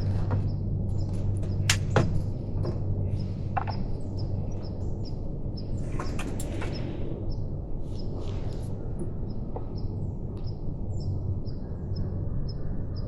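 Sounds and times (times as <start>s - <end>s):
small birds chirping: 0.0s - 13.0s
steady low hum: 0.0s - 13.0s
sharp snaps: 1.7s - 2.0s.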